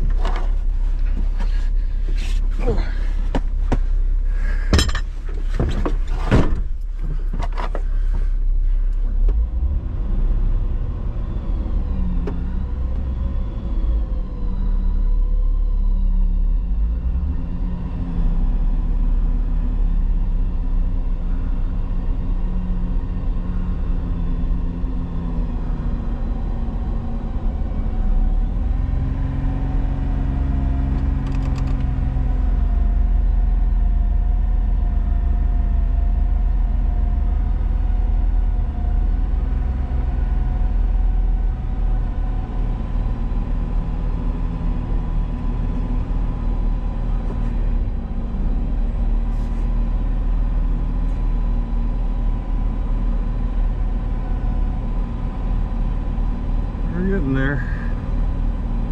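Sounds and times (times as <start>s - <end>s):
vehicle engine running: 0.0s - 58.9s.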